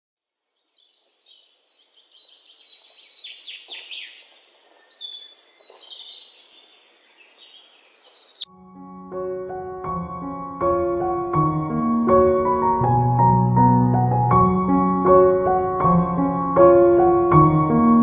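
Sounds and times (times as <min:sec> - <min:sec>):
birds chirping and whistling: 0:00.7 - 0:08.5.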